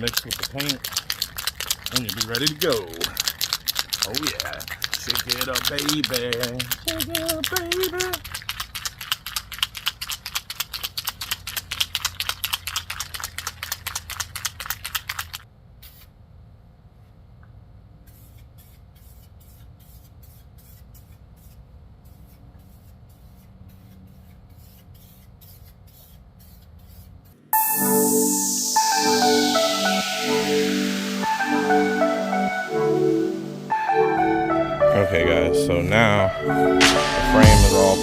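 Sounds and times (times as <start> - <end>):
aerosol can ball rattling: 0.0 - 15.4
quiet short shaking strokes: 0.0 - 15.4.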